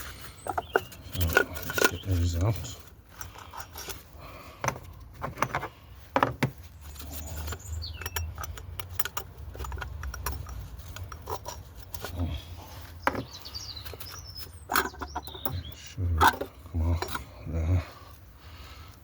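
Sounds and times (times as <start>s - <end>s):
bird chirping: 0.0s - 2.8s, 6.7s - 10.5s, 12.2s - 17.3s
hand tools clicking and knocking: 0.0s - 17.3s.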